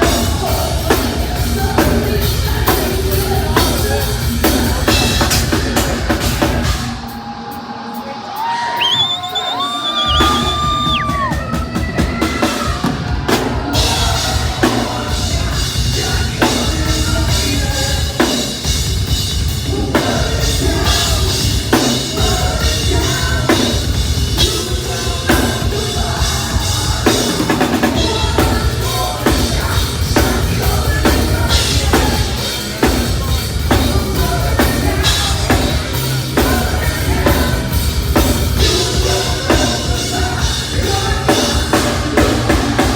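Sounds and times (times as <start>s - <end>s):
person singing: 0.0s - 18.8s, 19.6s - 42.9s
distorted guitars: 0.0s - 42.9s
heavy metal band playing: 0.0s - 42.9s
pounding drum kit: 0.0s - 42.9s.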